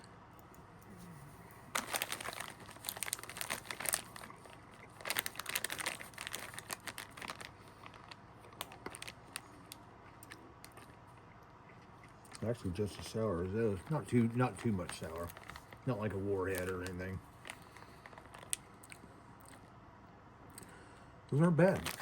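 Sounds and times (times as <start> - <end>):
snack pouch crinkling: 1.7 - 11.0, 13.8 - 19.6, 21.6 - 22.0.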